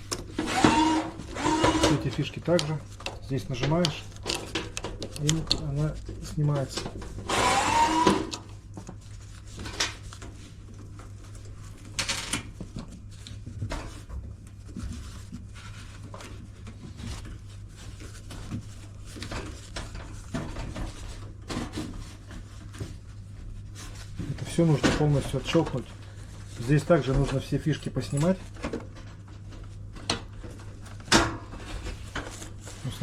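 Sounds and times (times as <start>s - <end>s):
plastic scraping squeak: 0.5s - 2.2s.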